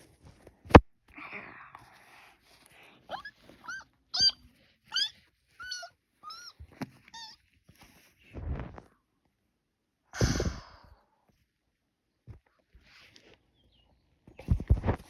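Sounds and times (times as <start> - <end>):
kitten mewing: 3.1 - 7.4.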